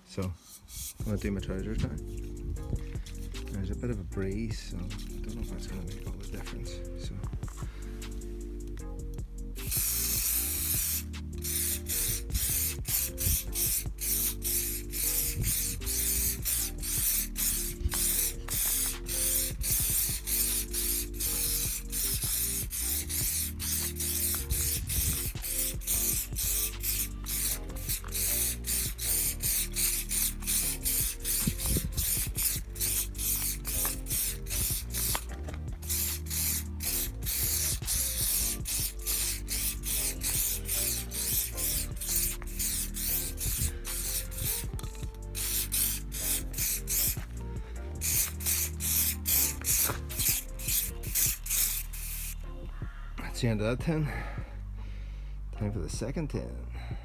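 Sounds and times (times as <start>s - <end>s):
aerosol spray hissing in bursts: 9.6s - 52.4s.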